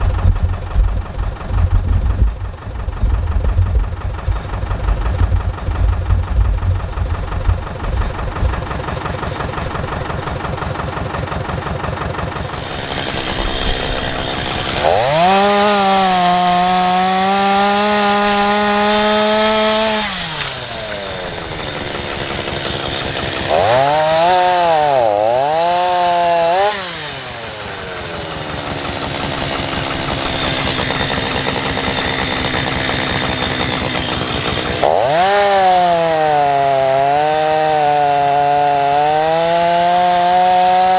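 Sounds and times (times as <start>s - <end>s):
low engine rumble: 0.0s - 23.2s
chainsaw revving and sawing wood: 1.3s - 40.9s.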